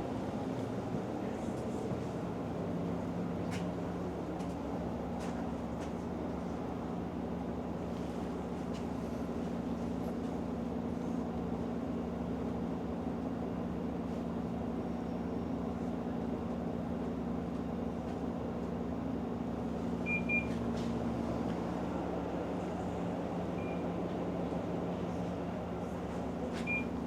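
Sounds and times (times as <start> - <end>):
bus diesel engine droning: 0.0 - 27.0.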